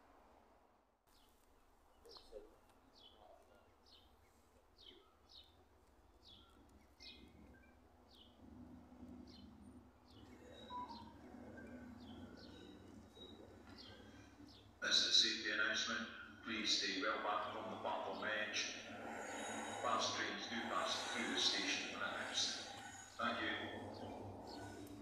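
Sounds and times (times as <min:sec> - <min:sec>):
small bird chirping: 0:01.1 - 0:14.8
diesel locomotive rumble: 0:07.2 - 0:25.0.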